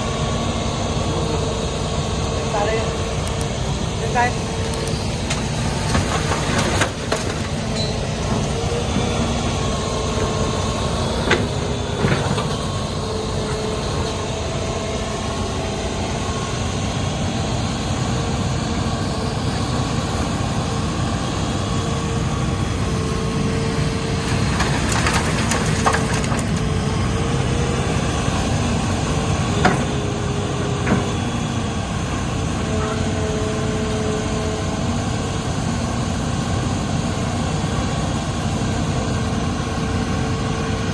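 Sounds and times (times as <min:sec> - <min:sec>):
excavator engine and hydraulics whining: 0:00.0 - 0:40.9.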